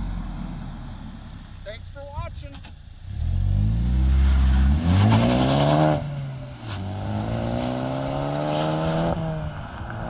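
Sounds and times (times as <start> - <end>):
car engine revving hard: 3.0 - 9.4.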